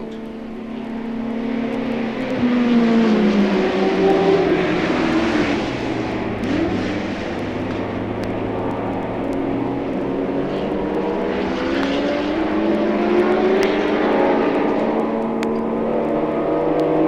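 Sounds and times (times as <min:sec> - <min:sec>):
racing car engines: 0:00.0 - 0:17.0
vinyl record surface clicks: 0:06.1 - 0:17.0.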